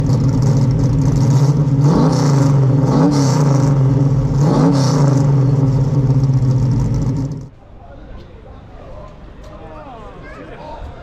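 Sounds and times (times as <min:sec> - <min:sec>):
car engine idling and revving: 0:00.0 - 0:07.5.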